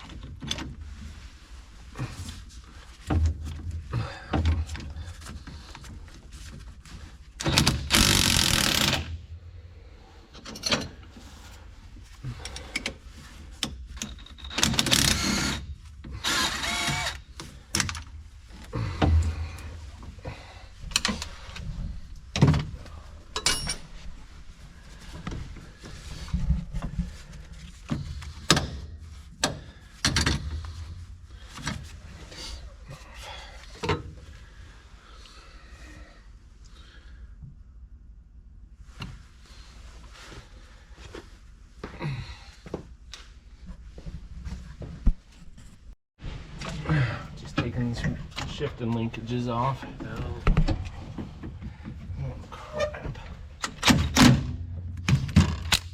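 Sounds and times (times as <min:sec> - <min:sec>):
metal tools and parts clanking: 0:10.3 - 0:11.1, 0:13.9 - 0:15.1, 0:23.3 - 0:24.1.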